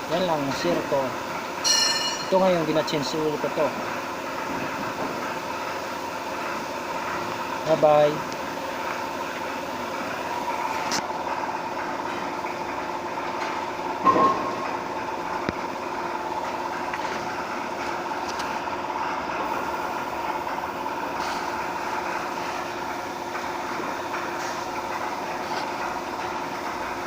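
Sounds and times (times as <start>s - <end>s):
machine hum with held tones: 1.4s - 2.9s, 9.0s - 27.0s.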